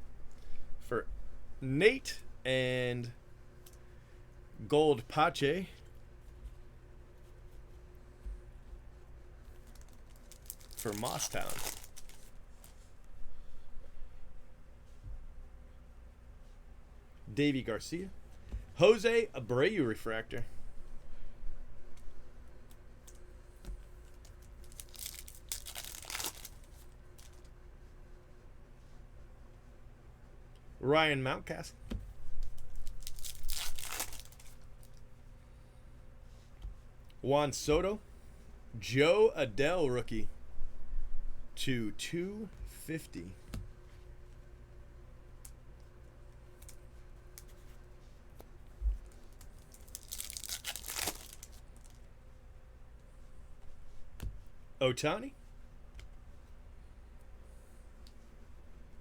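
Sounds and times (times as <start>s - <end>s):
foil wrapper tearing: 9.6s - 12.4s, 24.2s - 27.4s, 32.4s - 35.0s, 49.3s - 52.0s.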